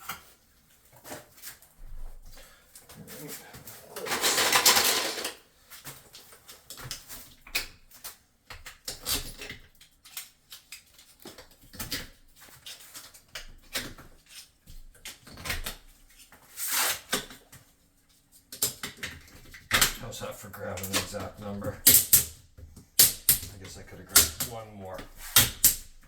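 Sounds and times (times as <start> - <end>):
tile scraping: 3.0 - 5.4
tiles clicking and tapping: 4.0 - 5.4.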